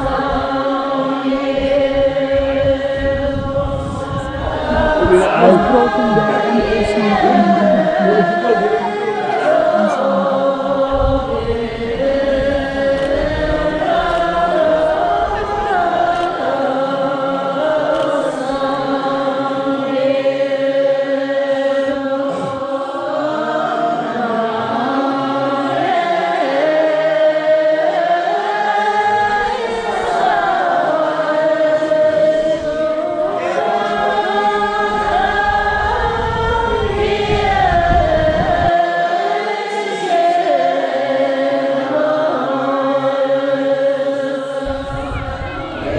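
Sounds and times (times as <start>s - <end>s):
choir chanting held notes: 0.0s - 45.9s.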